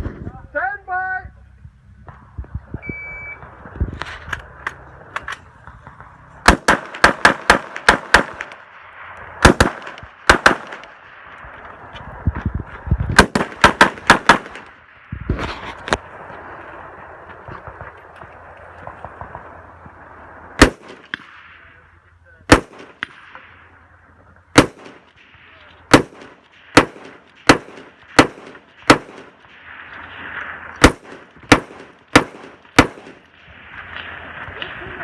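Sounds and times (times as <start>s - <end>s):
rifle shots: 5.9s - 8.8s, 9.4s - 11.1s, 13.2s - 14.8s, 20.6s - 21.7s, 22.5s - 23.4s, 24.5s - 25.3s, 25.9s - 29.6s, 30.7s - 33.4s.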